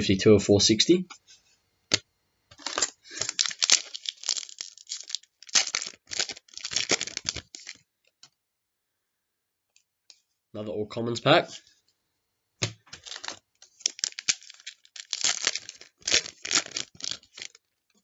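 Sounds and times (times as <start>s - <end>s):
wrapper tearing and crinkling: 2.6s - 7.8s, 13.0s - 17.7s.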